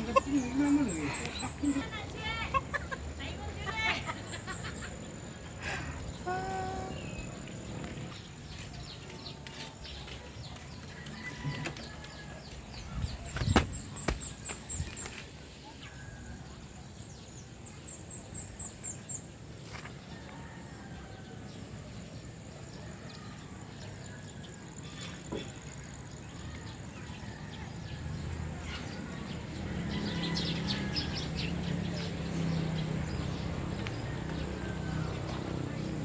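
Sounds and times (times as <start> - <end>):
birds chirping: 0.0 - 16.2
outdoor background noise: 0.0 - 36.0.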